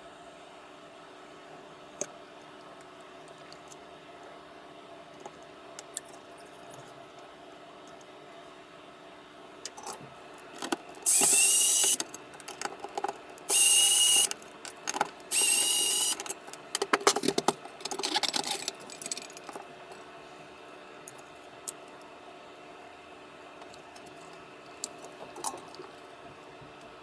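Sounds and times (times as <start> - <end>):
clicks and handling noises: 9.6 - 20.1
small electric motor whining: 11.0 - 12.0, 13.5 - 14.4, 15.3 - 16.3.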